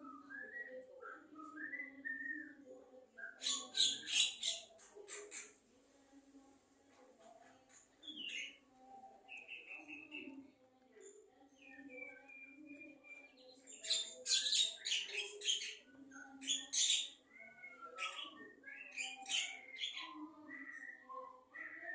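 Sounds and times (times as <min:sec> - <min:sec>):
harsh rapid bird chirps: 0:03.2 - 0:05.6, 0:11.6 - 0:21.0.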